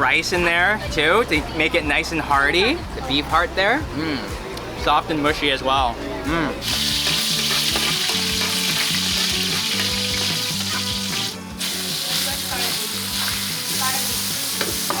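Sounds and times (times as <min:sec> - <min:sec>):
food sizzling in a hot pan: 0:06.6 - 0:15.0.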